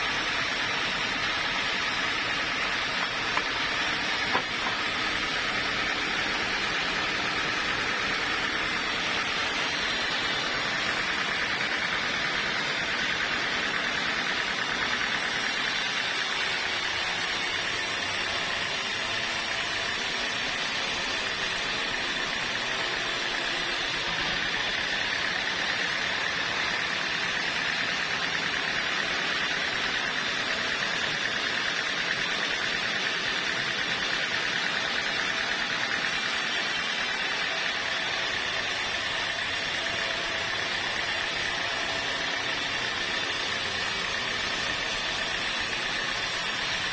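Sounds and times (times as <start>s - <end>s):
sawmill machinery running: 0.0s - 46.9s.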